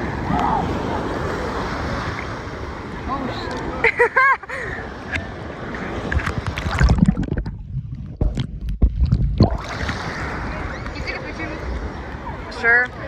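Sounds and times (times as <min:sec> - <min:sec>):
sea water splashing: 0:00.0 - 0:13.0
wind rumbling on microphone: 0:04.7 - 0:13.0.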